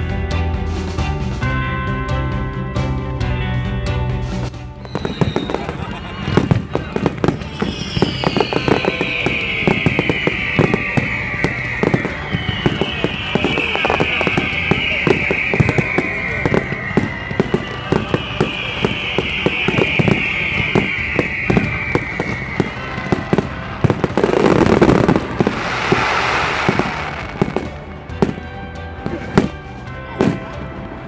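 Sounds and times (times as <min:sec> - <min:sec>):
fireworks bangs and crackles: 0:04.2 - 0:31.0
firework whistles falling in pitch: 0:04.8 - 0:28.5, 0:29.4 - 0:29.6.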